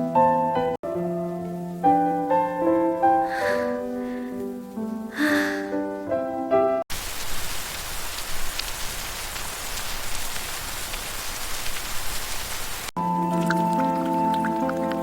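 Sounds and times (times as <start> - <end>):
soft piano music: 0.0 - 6.9, 13.0 - 15.0
steady rain: 0.9 - 13.0
single raindrops: 6.9 - 15.0.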